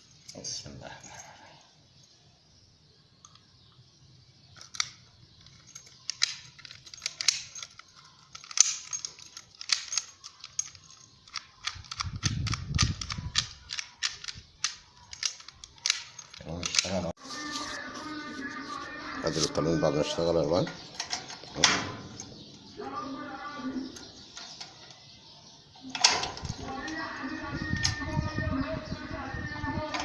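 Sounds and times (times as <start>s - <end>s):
lock mechanism clicking: 4.6s - 17.1s, 20.6s - 22.7s, 25.8s - 27.0s.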